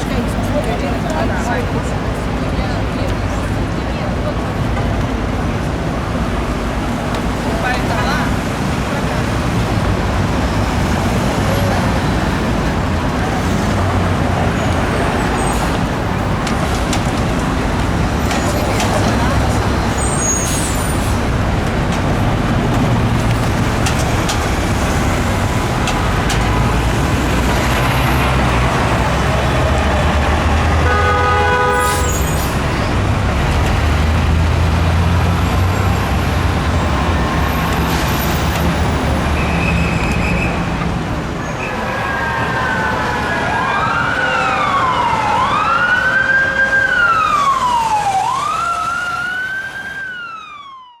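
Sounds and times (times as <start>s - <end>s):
street traffic: 0.0s - 51.0s
emergency siren wailing: 17.6s - 33.1s, 41.5s - 51.0s
car horn blast: 30.8s - 32.2s.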